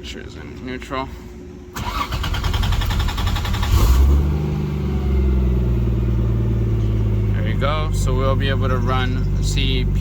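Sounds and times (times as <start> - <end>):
engine starter cranking: 1.8 - 4.2
car engine idling: 1.8 - 10.0.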